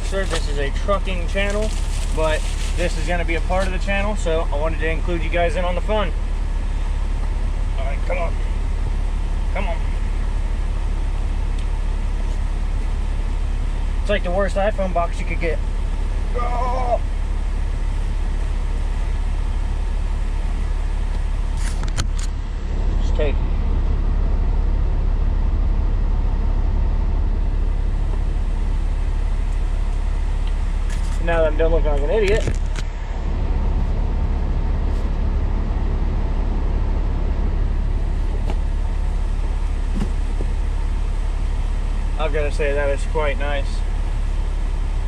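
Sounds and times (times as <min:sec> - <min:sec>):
truck engine idling: 0:00.0 - 0:45.0
packaging clicks and rustles: 0:01.7 - 0:02.8.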